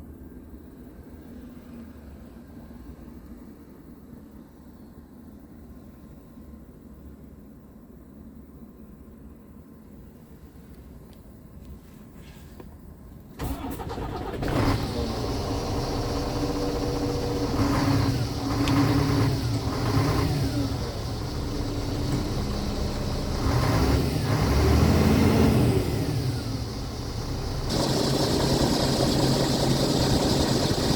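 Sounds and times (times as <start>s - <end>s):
diesel truck engine starting: 13.4s - 30.9s
truck engine revving: 13.4s - 30.9s.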